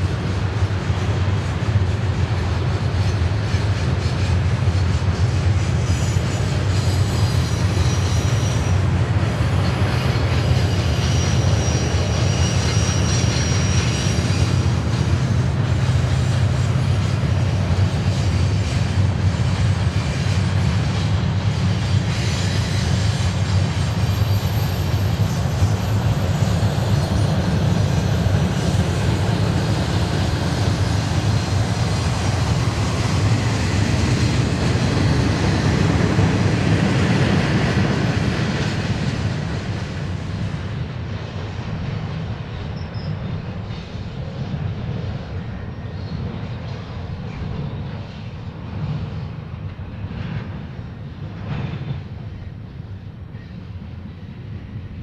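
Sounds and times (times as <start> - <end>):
freight train rumbling past: 0.0 - 55.0
faint high wheel squeal: 3.0 - 17.4, 20.0 - 39.2, 42.4 - 49.3.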